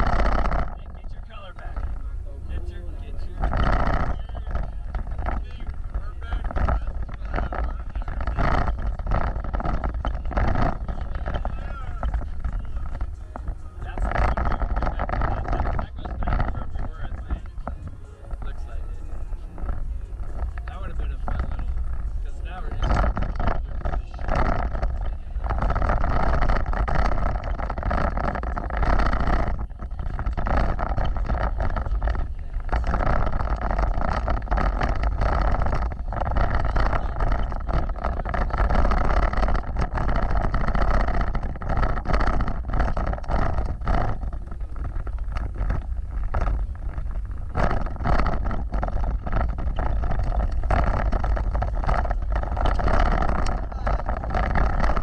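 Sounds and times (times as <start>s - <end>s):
vehicle engine and tyre rumble: 0.0s - 55.0s.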